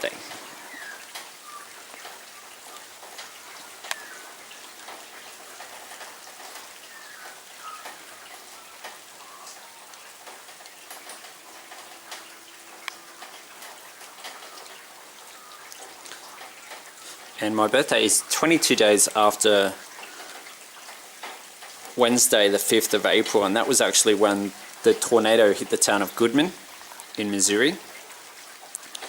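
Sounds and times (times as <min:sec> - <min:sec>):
drops ticking on surfaces: 0:00.0 - 0:22.0
rain falling: 0:00.0 - 0:29.0.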